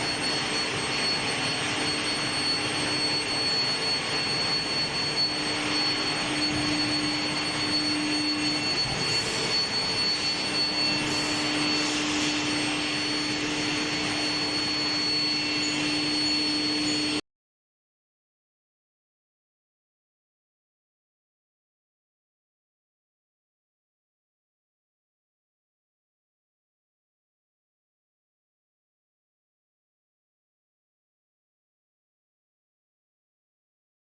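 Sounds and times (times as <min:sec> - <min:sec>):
high-pitched industrial whine: 0:00.0 - 0:17.2.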